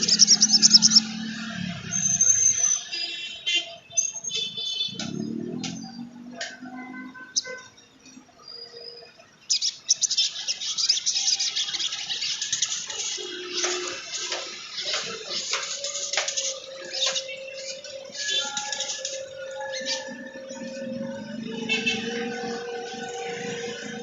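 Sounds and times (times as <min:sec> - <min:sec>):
sunbird twittering: 0:00.0 - 0:01.3
held bird notes: 0:00.0 - 0:02.9.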